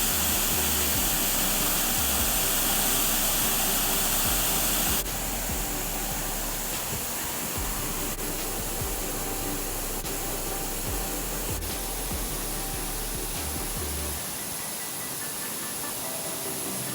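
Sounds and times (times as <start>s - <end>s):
background music: 0.0s - 16.9s
waterfall rushing: 0.0s - 16.9s.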